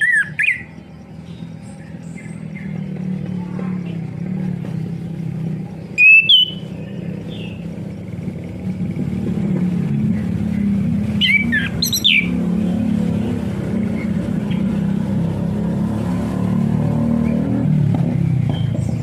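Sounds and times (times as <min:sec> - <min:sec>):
thrush sharp calls: 0:00.0 - 0:00.8, 0:05.9 - 0:07.9, 0:10.0 - 0:14.8
low engine-like hum: 0:00.0 - 0:19.0.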